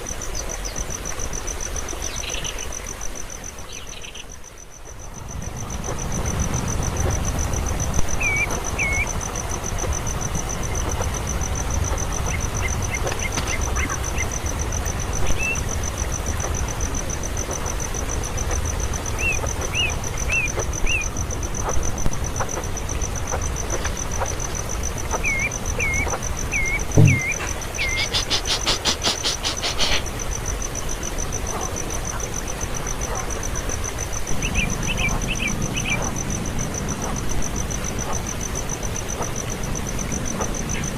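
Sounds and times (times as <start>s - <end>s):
bird chirps: 25.2s - 30.0s
low rumbling noise: 26.9s - 27.8s.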